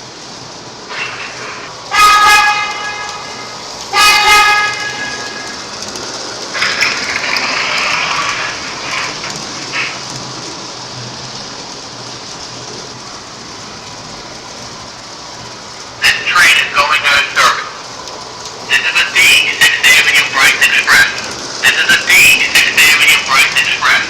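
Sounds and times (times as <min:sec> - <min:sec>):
model train wheels rumbling: 0:00.0 - 0:24.0
loud hiss: 0:00.6 - 0:05.7, 0:06.4 - 0:10.6, 0:16.0 - 0:17.7, 0:18.7 - 0:24.0.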